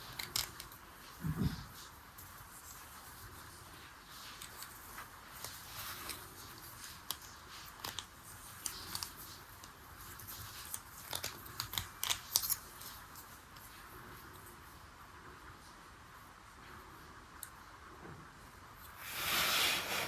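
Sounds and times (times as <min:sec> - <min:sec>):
small objects clicking and tapping: 0:07.0 - 0:13.0.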